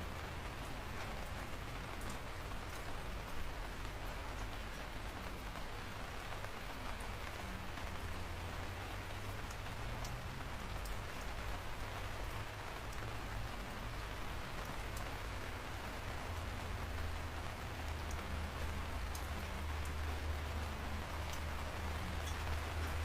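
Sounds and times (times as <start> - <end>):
raindrops ticking: 0.0 - 23.0
steady rain falling: 0.0 - 23.0.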